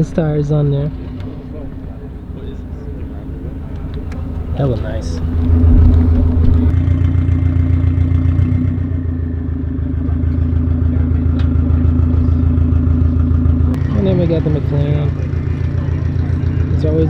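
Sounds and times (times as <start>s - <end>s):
car engine running: 0.0s - 6.7s.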